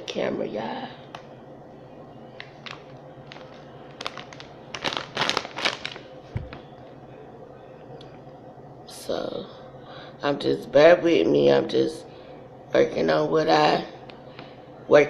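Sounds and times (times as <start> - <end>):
chip bag rustling and crackling: 2.3 - 6.7
soft low thump: 6.3 - 6.6.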